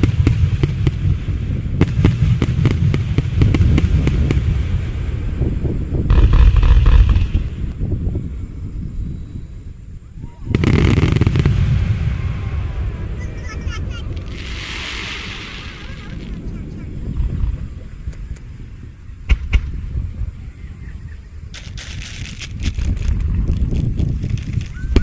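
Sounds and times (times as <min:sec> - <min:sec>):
fireworks bangs and crackles: 0:00.0 - 0:08.1, 0:10.4 - 0:20.4, 0:21.5 - 0:25.0
fireworks heavy boom: 0:00.0 - 0:08.7, 0:10.4 - 0:20.4.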